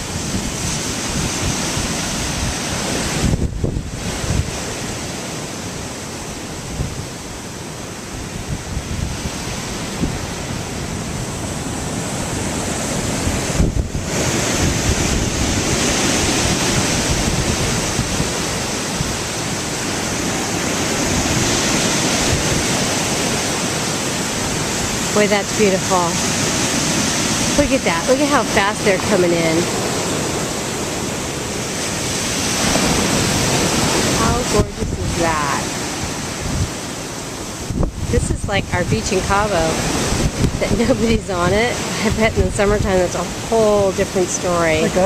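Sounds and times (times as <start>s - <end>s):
ocean surf washing: 0.0s - 45.0s
wind buffeting microphone: 0.0s - 45.0s.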